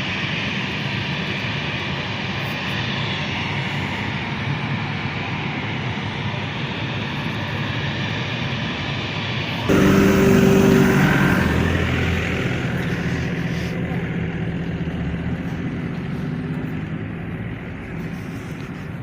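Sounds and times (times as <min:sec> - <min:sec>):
motor engine running: 0:09.6 - 0:19.0.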